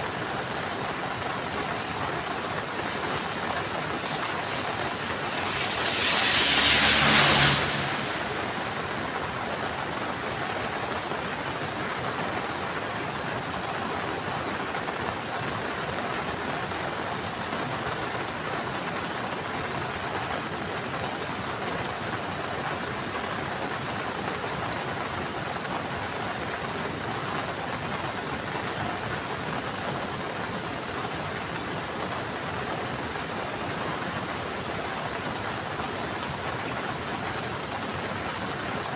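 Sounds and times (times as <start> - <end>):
heavy rain falling: 0.0 - 15.2.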